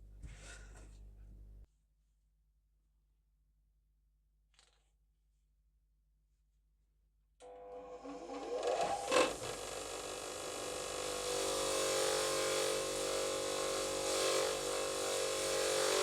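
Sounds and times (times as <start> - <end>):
electric power tool spinning: 7.4 - 16.0.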